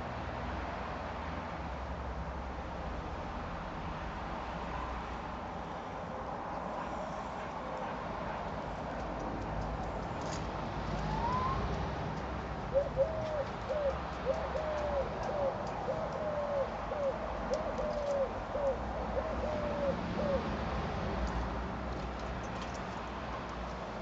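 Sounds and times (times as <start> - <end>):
bird hooting: 11.0 - 11.8, 12.7 - 20.5.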